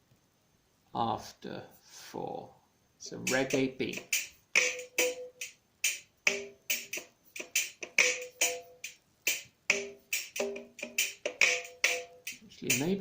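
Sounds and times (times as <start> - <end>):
guitar chord strums: 3.2 - 5.4.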